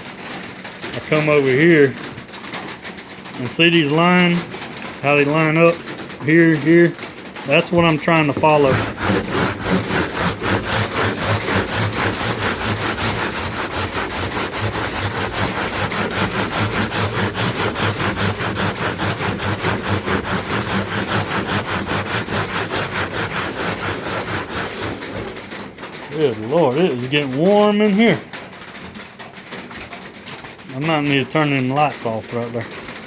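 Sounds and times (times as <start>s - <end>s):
sandpaper rubbing painted metal: 6.4s - 25.5s.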